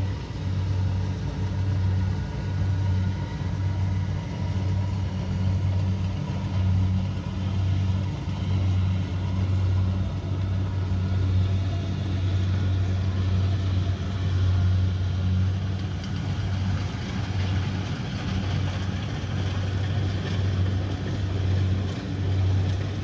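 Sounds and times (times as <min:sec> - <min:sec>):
combine harvester engine humming: 0:00.0 - 0:23.0.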